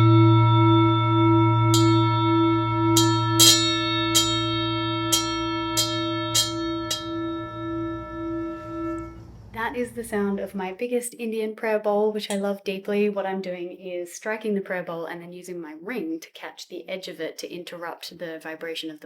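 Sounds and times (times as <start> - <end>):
singing bowl ringing: 0.0 - 10.7
ring buzzing against bowl rim: 1.7 - 10.6.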